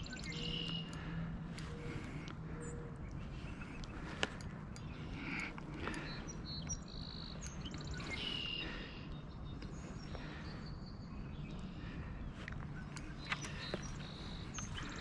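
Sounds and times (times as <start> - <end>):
low background rumble: 0.0 - 15.0
songbirds whistling and trilling: 0.0 - 15.0.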